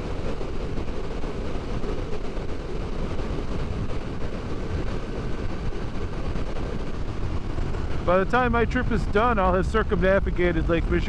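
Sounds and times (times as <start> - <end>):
wind noise: 0.0 - 11.0
road noise: 6.6 - 11.0
motorcycle engine drone: 6.7 - 11.0.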